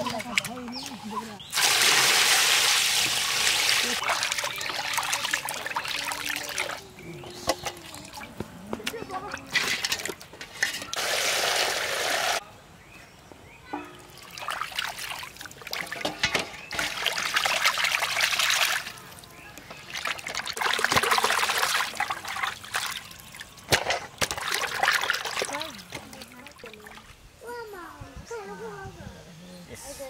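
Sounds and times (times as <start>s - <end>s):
metal vessels clattering: 0.0s - 1.8s, 3.8s - 11.3s, 13.7s - 19.0s, 23.6s - 26.3s.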